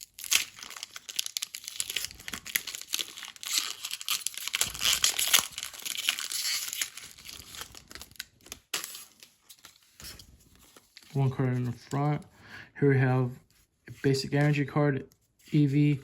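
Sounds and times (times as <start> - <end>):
foil wrapper tearing and crinkling: 0.0 - 11.1.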